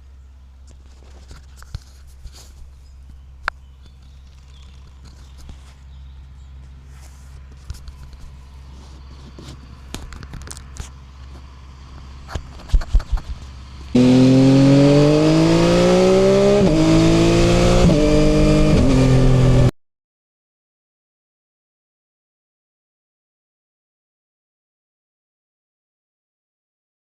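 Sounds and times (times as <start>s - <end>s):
motorcycle engine revving: 7.6s - 19.7s.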